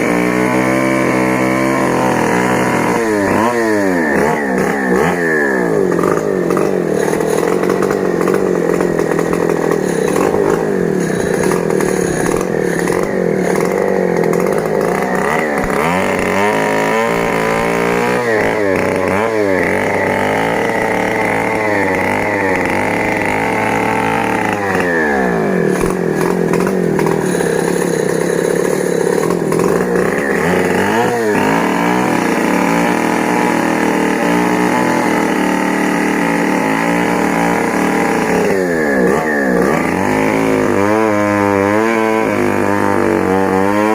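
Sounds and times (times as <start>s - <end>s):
chainsaw sawing timber: 0.0s - 43.9s.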